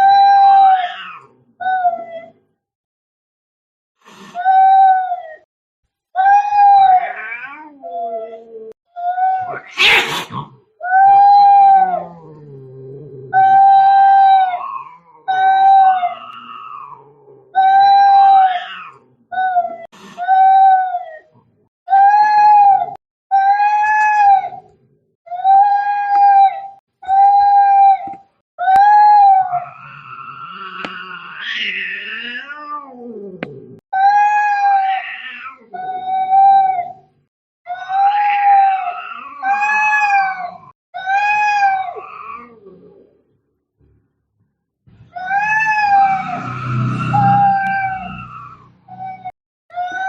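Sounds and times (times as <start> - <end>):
cats yowling: 0.0 - 2.4, 6.2 - 37.1, 37.7 - 43.1, 45.0 - 50.0
cat growling: 9.3 - 10.7, 11.6 - 19.9, 29.4 - 33.8, 38.2 - 43.4.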